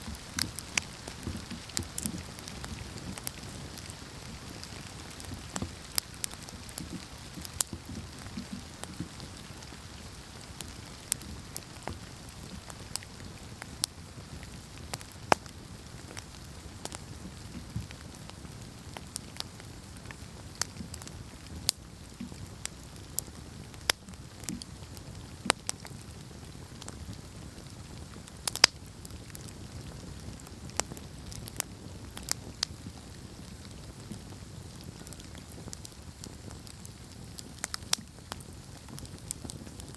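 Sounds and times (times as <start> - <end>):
rush of flames: 0.0 - 17.0
wood crackling and popping: 0.0 - 39.9.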